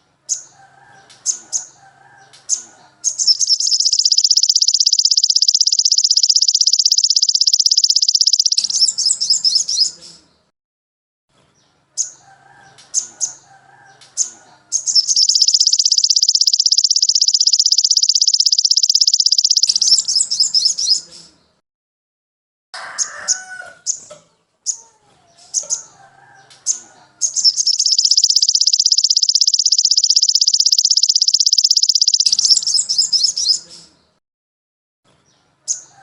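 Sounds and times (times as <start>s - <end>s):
bird chips: 2.5s - 10.2s, 14.2s - 21.3s, 26.7s - 33.9s
songbird trilling: 2.5s - 10.2s, 14.2s - 21.1s, 26.7s - 33.9s.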